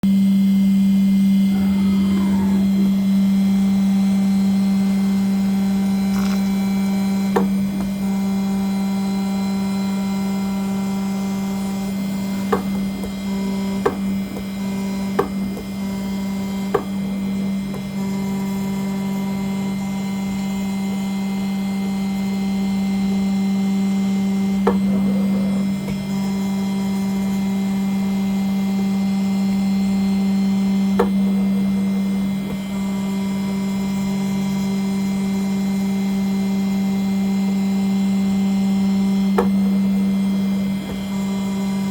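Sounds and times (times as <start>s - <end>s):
engraving machine humming: 0.1s - 41.9s.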